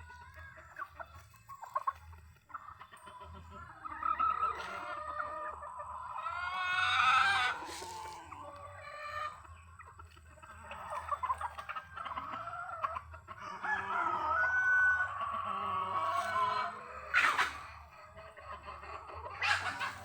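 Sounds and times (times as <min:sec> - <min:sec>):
chickens clucking: 0:00.0 - 0:20.0
rooster crowing: 0:13.5 - 0:15.2.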